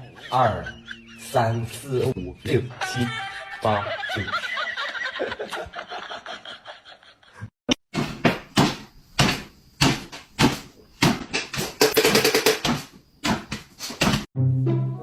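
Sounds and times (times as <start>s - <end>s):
sharp knocks or bangs: 7.9s - 14.3s.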